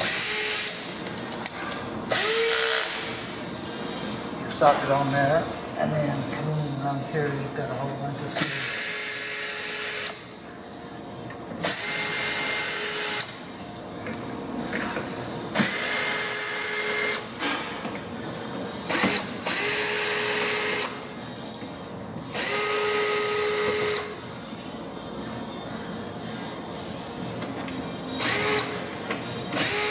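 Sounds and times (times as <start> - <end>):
power drill whining: 28.2 - 28.8, 29.6 - 29.9.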